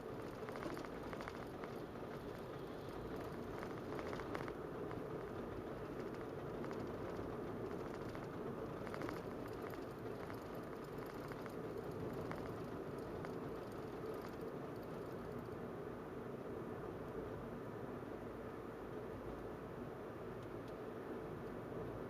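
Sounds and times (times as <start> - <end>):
rapid rattling ticks: 0.0 - 15.6
car interior drone: 0.0 - 15.7.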